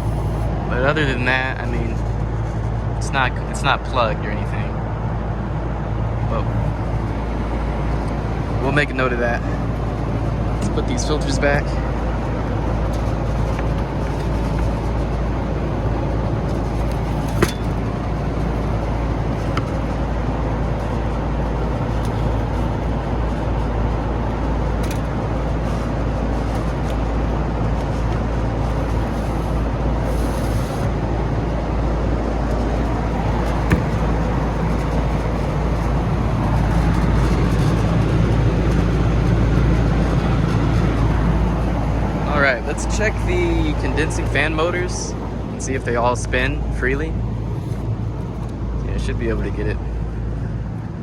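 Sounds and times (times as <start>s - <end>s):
hvac machinery droning: 0.0s - 51.0s
air filters knocking: 9.6s - 23.4s, 32.4s - 39.0s.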